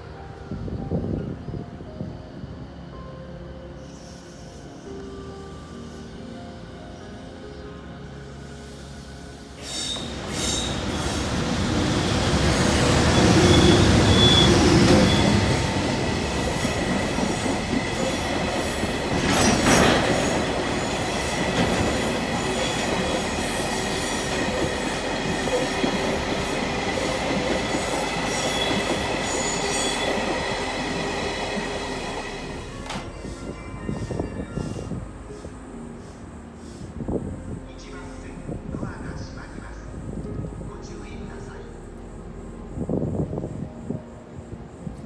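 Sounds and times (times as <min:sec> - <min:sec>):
train wheels rumbling on rails: 0:09.6 - 0:35.4.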